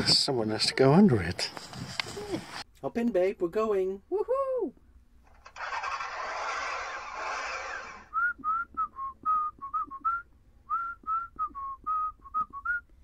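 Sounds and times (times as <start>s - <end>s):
person whistling a tune: 8.1s - 13.0s.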